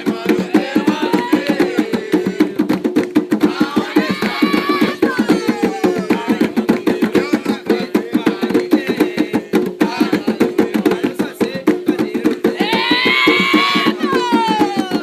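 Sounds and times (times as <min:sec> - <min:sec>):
voices singing: 0:00.0 - 0:02.8, 0:03.4 - 0:15.0
hand drums beating: 0:00.0 - 0:15.0.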